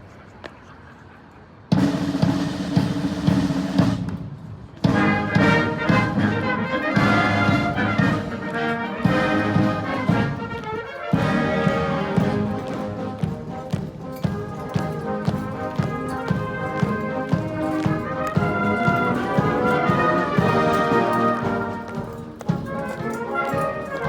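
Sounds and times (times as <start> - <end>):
regular drum beat: 1.7 - 24.0
military brass band playing: 1.8 - 4.1, 4.8 - 24.0
loud band chord: 4.9 - 24.0.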